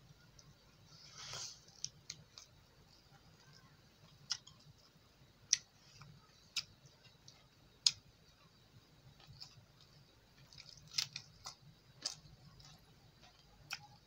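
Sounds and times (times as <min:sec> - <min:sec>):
wet clicks and smacks chewing: 0:03.4 - 0:08.5, 0:09.1 - 0:14.0.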